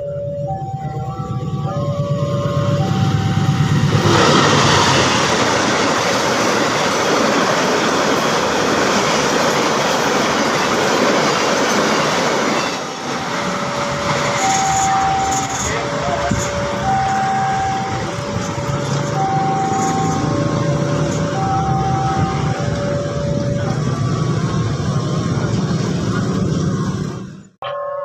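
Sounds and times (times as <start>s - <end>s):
two-pitch electronic warning tone: 0.0s - 5.6s, 12.6s - 24.5s
train wheels rushing on rails: 0.5s - 27.5s.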